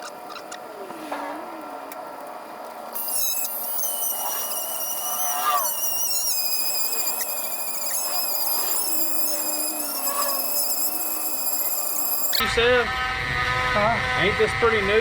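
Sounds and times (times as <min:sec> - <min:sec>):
rotary tool whining cutting metal: 0:03.0 - 0:12.4.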